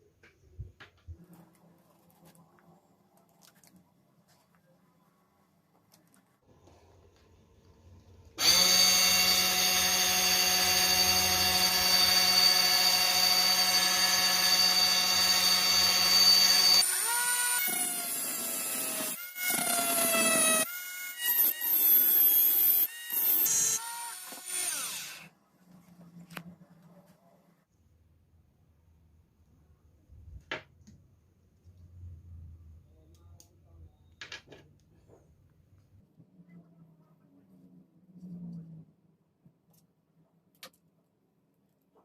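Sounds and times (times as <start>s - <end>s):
cordless drill motor running: 8.4s - 25.3s.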